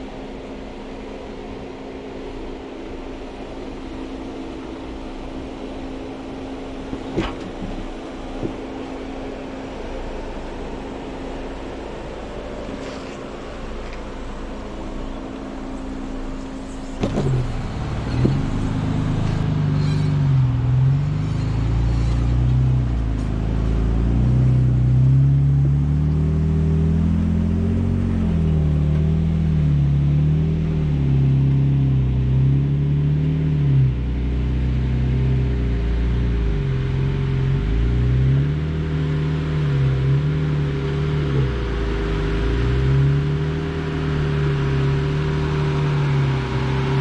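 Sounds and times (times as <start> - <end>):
engine revving: 16.2 - 47.0.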